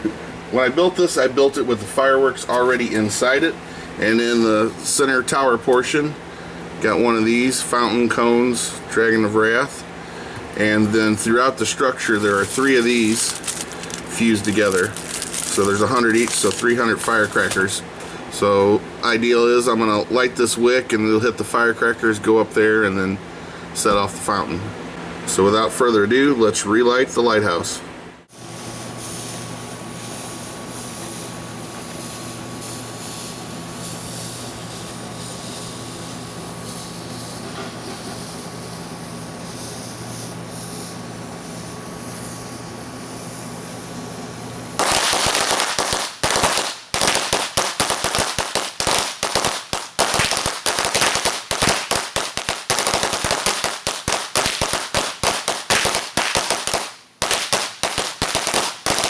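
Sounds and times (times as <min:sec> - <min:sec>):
low hum with faint tone: 0:00.0 - 0:44.8
firecrackers popping: 0:12.0 - 0:18.1, 0:44.8 - 0:59.0.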